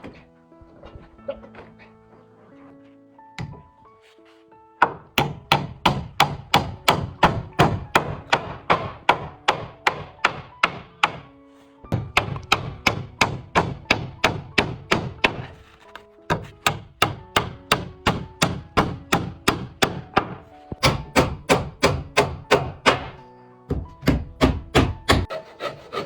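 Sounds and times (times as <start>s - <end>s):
hammering on wooden boards: 4.8s - 11.3s, 11.9s - 25.3s.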